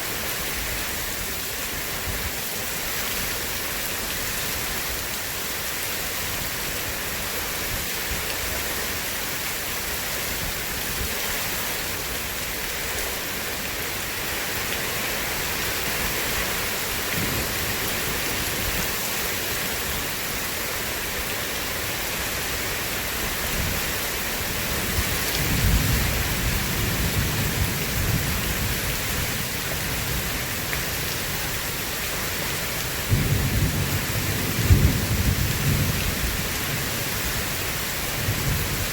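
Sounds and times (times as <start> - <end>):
heavy rain: 0.0 - 38.9
thunder rumbling: 33.1 - 36.5.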